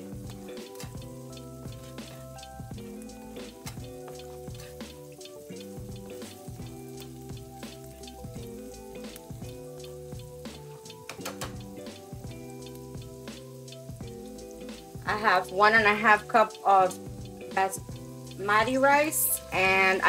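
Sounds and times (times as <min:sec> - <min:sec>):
music of sustained chords: 0:00.0 - 0:20.0
onions sizzling in a frying pan: 0:00.0 - 0:20.0
spatula stirring: 0:00.3 - 0:09.1.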